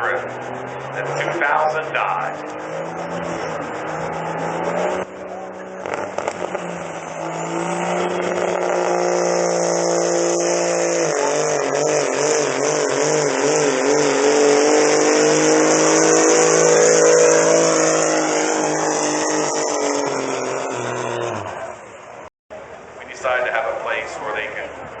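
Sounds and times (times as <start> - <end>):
diesel truck engine at full throttle: 0.0 - 25.0.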